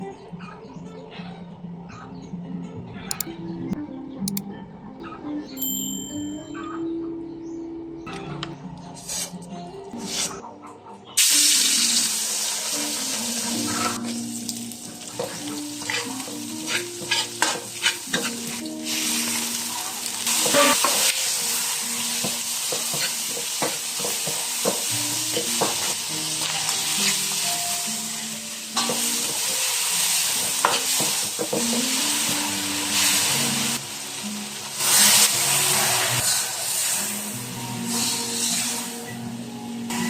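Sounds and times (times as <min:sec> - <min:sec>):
food sizzling in hot oil: 0:11.2 - 0:39.1.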